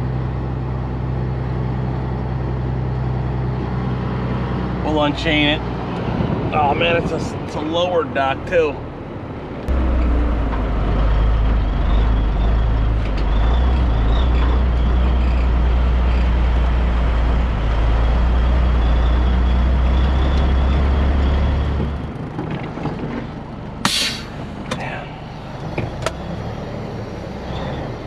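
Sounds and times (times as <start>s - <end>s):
diesel truck engine idling: 23.4s - 28.0s
air brake hiss: 23.8s - 24.8s.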